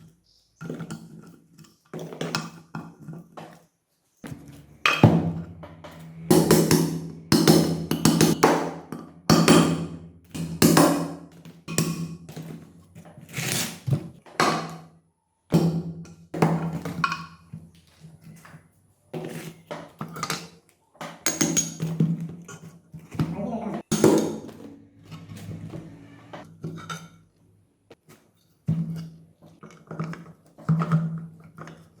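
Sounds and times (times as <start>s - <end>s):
steady low hum: 4.3s - 8.4s.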